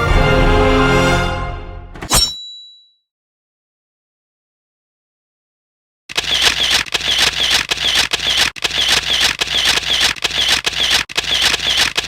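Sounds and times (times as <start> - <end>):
camera shutter sound effect: 6.1 - 12.0.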